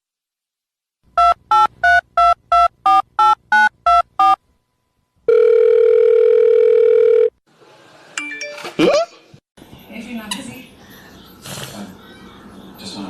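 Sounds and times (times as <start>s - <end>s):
steady telephone tone: 5.3s - 7.4s.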